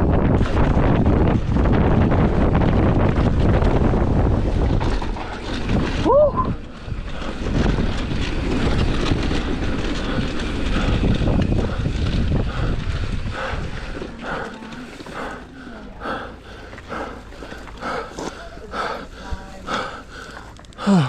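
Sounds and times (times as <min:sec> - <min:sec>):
wind on microphone: 0:00.0 - 0:14.5
mountain bike rattling and rumbling: 0:00.0 - 0:21.0
hard rhythmic breathing: 0:07.0 - 0:21.0.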